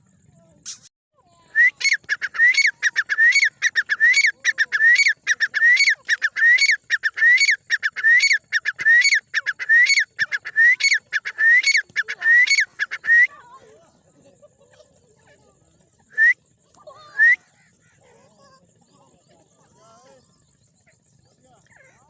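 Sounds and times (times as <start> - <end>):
francolin calling: 0.7 - 13.5.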